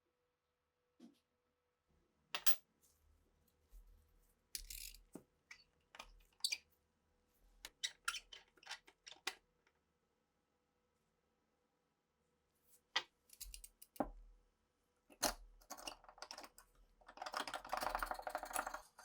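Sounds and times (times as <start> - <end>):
pistol parts clicking and clinking: 2.4 - 2.6, 4.6 - 5.0.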